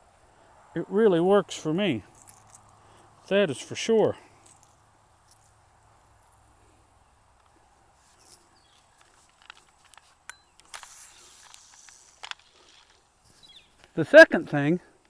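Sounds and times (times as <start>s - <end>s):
faint outdoor ambience: 0.0s - 15.0s
short rustle: 2.0s - 14.6s.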